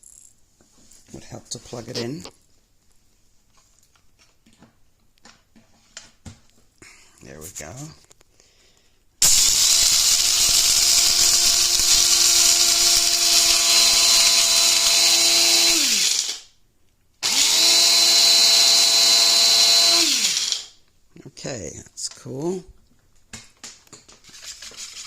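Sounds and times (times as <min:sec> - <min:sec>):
electric coffee grinder grinding: 0:09.2 - 0:16.5, 0:17.2 - 0:20.8.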